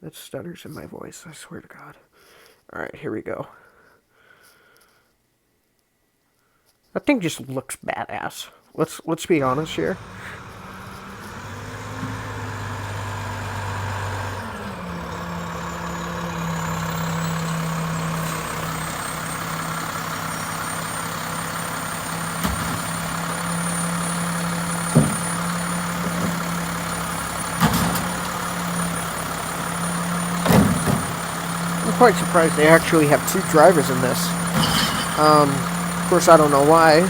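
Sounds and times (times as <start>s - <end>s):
diesel truck engine running: 9.4s - 37.0s.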